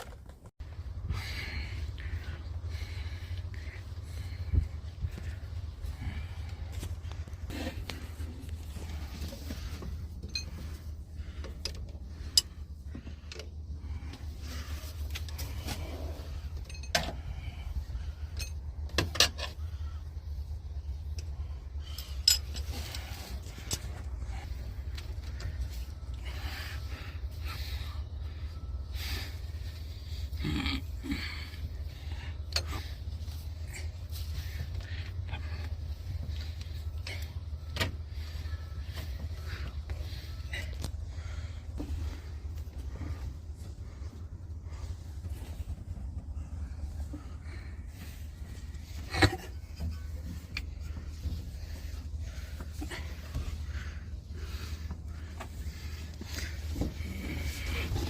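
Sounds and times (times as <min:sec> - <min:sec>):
steady low hum: 0:00.0 - 0:58.0
steady low rumble: 0:00.0 - 0:58.0
metallic clinks and knocks: 0:10.1 - 0:10.9, 0:16.5 - 0:17.3, 0:21.8 - 0:23.9.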